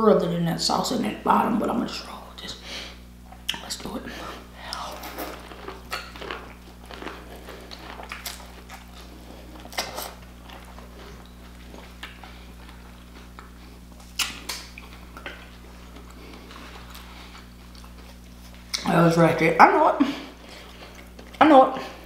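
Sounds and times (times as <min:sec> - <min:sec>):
steady low hum: 0:00.0 - 0:22.0
chewing corn on the cob: 0:04.6 - 0:18.8, 0:20.4 - 0:21.4.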